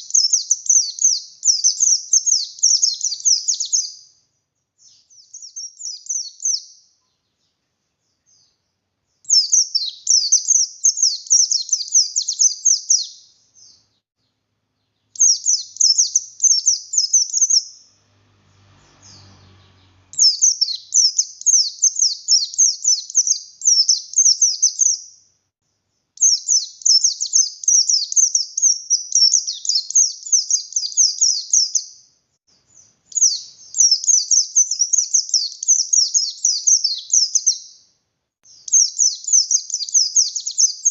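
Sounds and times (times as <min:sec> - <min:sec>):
bird singing rapid high chatter: 0:00.0 - 0:25.3, 0:26.0 - 0:40.9.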